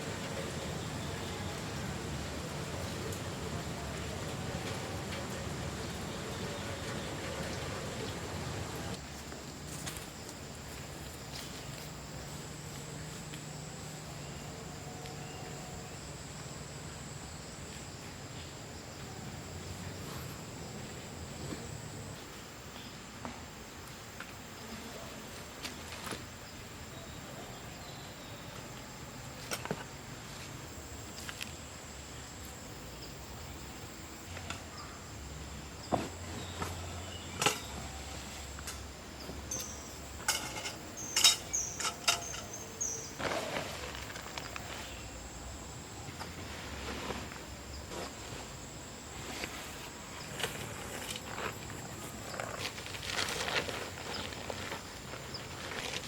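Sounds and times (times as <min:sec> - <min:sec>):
high insect drone: 0:00.0 - 0:56.0
insects high-pitched drone: 0:26.4 - 0:43.3.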